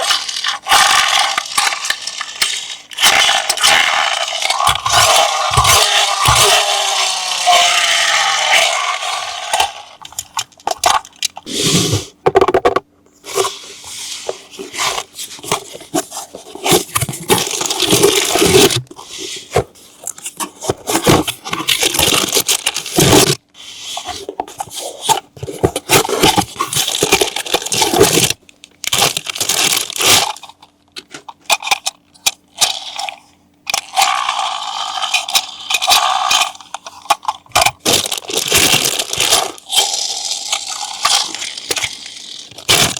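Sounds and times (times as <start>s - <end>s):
plastic and cardboard crinkling: 12.3s - 32.6s, 35.0s - 42.9s
packaging clicks: 17.2s - 18.9s, 21.0s - 23.4s, 25.0s - 32.7s, 35.1s - 42.9s.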